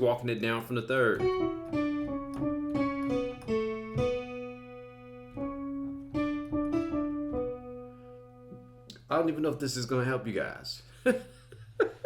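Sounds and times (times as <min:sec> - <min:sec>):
keyboard playing single notes: 0:01.2 - 0:09.0.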